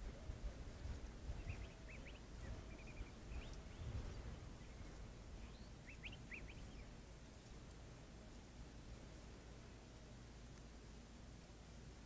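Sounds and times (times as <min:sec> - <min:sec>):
faint low rumble: 0:00.0 - 0:12.0
high bird chirps: 0:01.4 - 0:04.0, 0:05.4 - 0:06.9.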